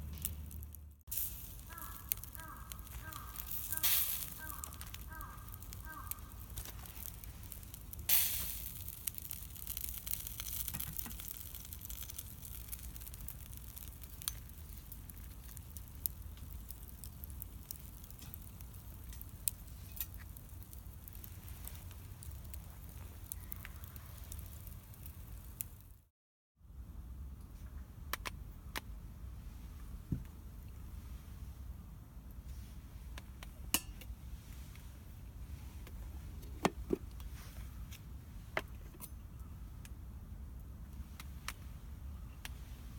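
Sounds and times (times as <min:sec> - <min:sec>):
wood bonfire crackling: 0:00.0 - 0:26.1
sharp pops: 0:00.2 - 0:25.0.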